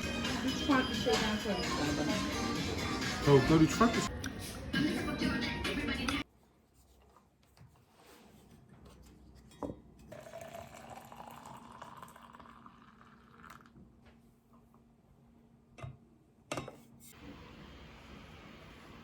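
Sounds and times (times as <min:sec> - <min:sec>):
liquid pouring into glass: 0:10.1 - 0:13.8.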